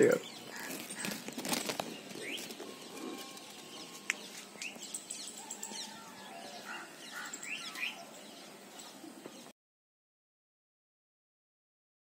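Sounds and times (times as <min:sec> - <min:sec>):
birds chirping: 0:00.0 - 0:09.5.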